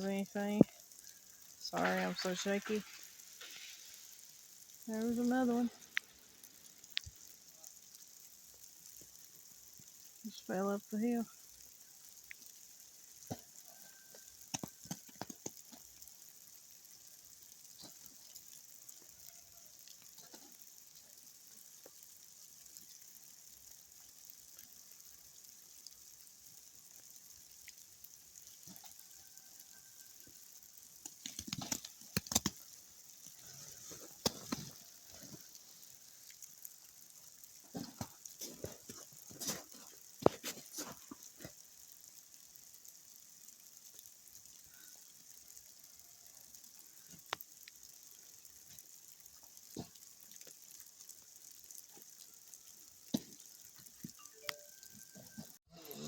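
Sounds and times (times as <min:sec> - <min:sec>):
ice-coated limbs crackling: 0:00.0 - 0:25.8, 0:27.5 - 0:42.9
patter of ice: 0:00.0 - 0:56.0.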